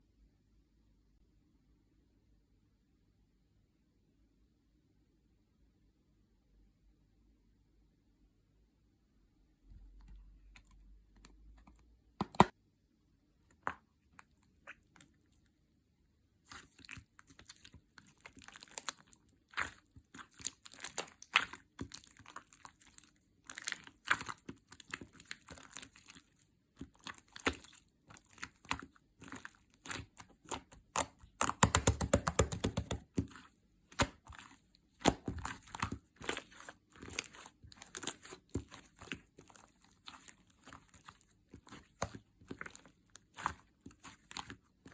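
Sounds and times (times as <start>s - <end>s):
slime crackling and popping: 16.5s - 44.9s.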